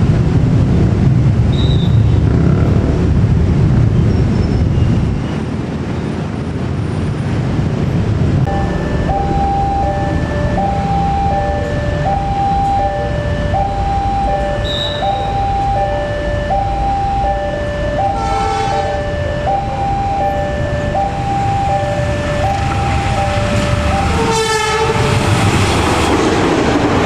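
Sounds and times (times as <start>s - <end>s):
approaching train rushing: 7.4s - 27.0s
level-crossing two-tone alarm: 8.5s - 25.4s
train horn blasts: 14.6s - 15.4s, 18.1s - 19.0s, 22.6s - 25.4s.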